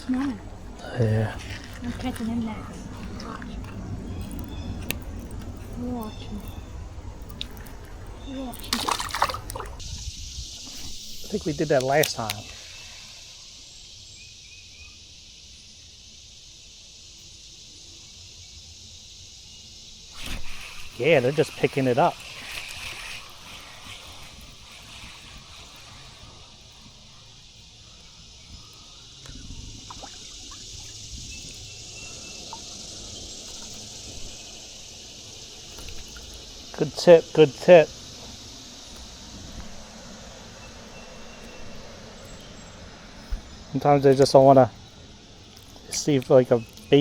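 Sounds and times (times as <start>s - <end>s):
steady low rumble: 0.0s - 8.8s
creek water trickling: 0.0s - 14.6s, 19.9s - 47.0s
faint chirps: 0.0s - 47.0s
steady high hiss: 0.0s - 47.0s.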